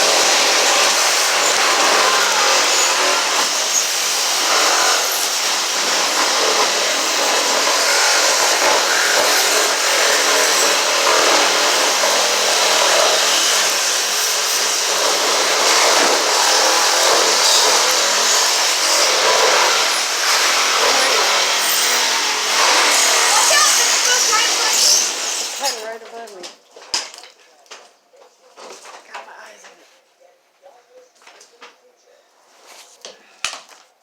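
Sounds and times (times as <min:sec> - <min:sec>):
power saw cutting: 0:00.0 - 0:25.9.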